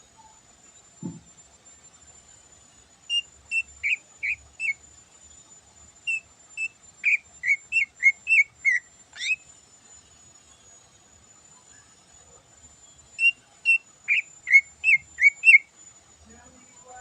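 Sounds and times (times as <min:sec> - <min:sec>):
bird singing whistled notes: 0:03.1 - 0:04.8, 0:06.1 - 0:09.5, 0:13.1 - 0:15.7.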